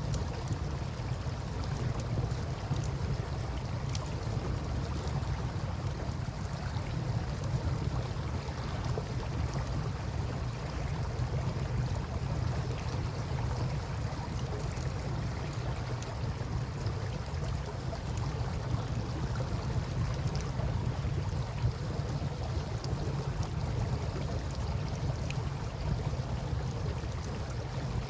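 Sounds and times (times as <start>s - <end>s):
campfire crackling: 0.0s - 8.2s
low steady rumble: 0.0s - 28.0s.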